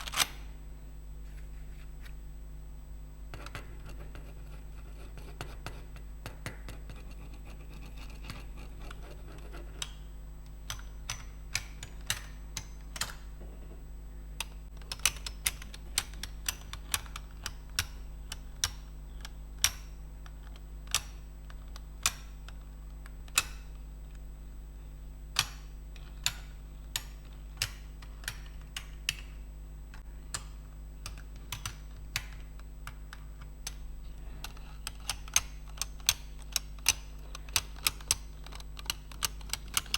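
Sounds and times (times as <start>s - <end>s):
keyboard keys clicking: 34.4s - 39.9s.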